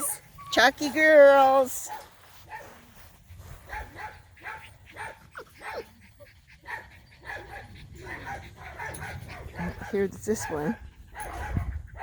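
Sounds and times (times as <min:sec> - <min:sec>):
puppies whimpering and yipping: 0:00.0 - 0:01.8, 0:04.4 - 0:12.0.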